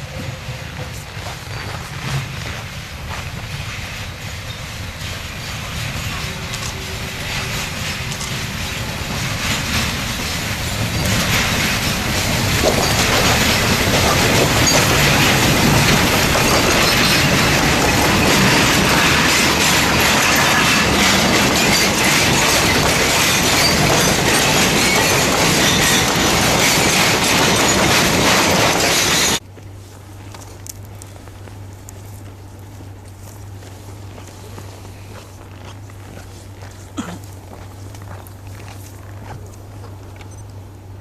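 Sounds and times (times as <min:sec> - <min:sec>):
train wheels clattering and squealing: 0:00.0 - 0:29.4.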